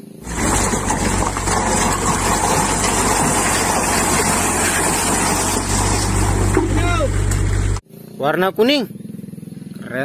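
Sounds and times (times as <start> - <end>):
diesel engine humming: 0.0 - 7.8
rocks and soil pouring out: 0.2 - 7.1.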